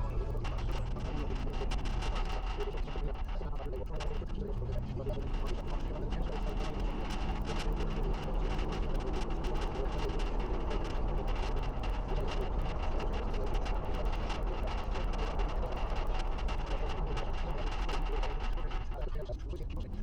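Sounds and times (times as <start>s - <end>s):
road rumble: 0.0s - 2.6s.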